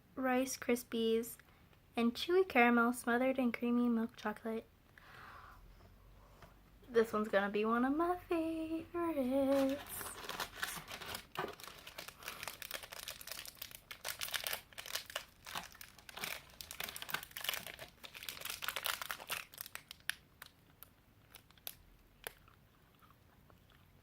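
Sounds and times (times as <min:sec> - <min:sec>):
candy wrapper crinkling and tearing: 0:09.5 - 0:22.6.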